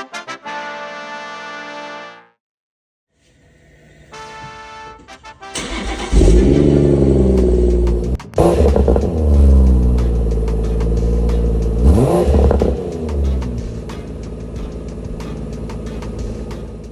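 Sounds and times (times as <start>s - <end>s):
car engine starting and revving: 5.6s - 16.9s.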